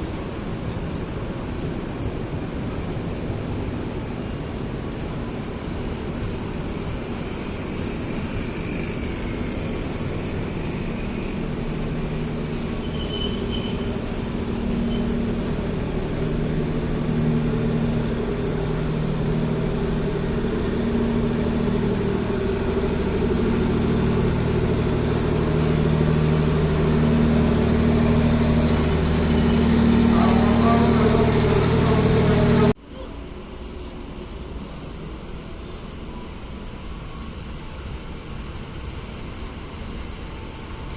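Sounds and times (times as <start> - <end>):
diesel locomotive engine hum: 0.0 - 40.9
low rumble: 14.3 - 32.8.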